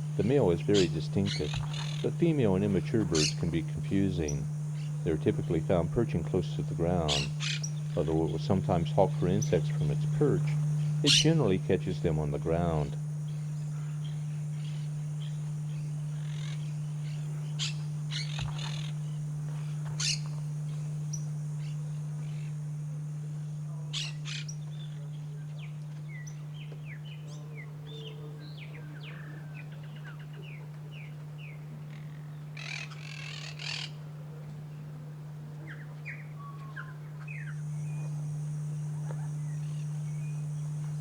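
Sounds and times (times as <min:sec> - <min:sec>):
wild birds chirping: 0:00.0 - 0:23.1, 0:23.8 - 0:34.1, 0:35.6 - 0:41.0
steady high hiss: 0:00.0 - 0:26.4, 0:37.5 - 0:41.0
steady low hum: 0:00.0 - 0:41.0.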